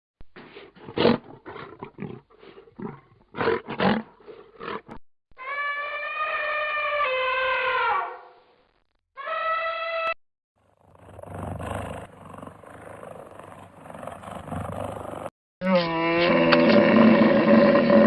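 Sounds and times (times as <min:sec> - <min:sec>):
animal pitched cry: 0:05.4 - 0:08.3, 0:09.2 - 0:10.2.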